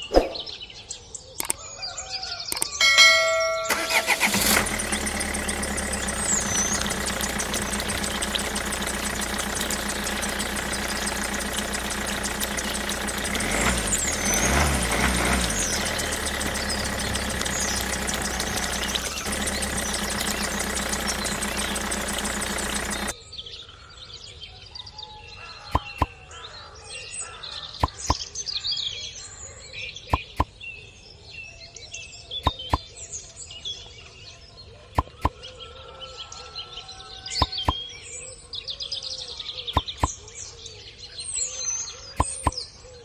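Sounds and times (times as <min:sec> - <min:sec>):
birds chirping: 0:00.0 - 0:23.1, 0:25.7 - 0:26.5
small engine running: 0:02.8 - 0:23.2.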